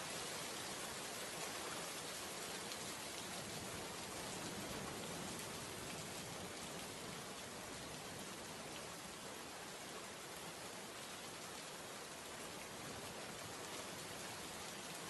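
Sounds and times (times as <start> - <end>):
rain on wet surface: 0.0 - 15.0.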